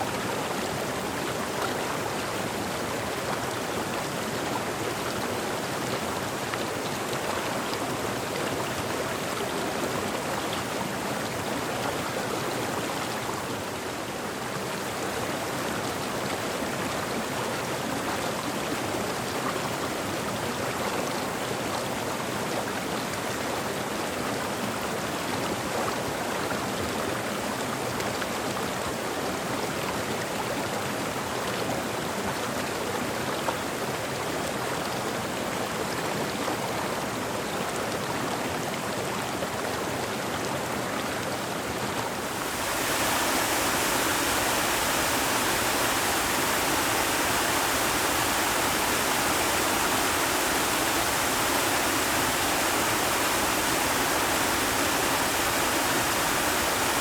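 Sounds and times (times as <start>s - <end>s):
water rushing: 41.8s - 57.0s.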